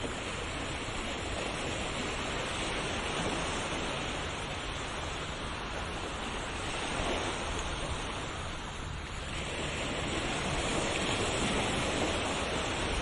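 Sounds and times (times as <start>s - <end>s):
waves washing onto shore: 0.0s - 13.0s.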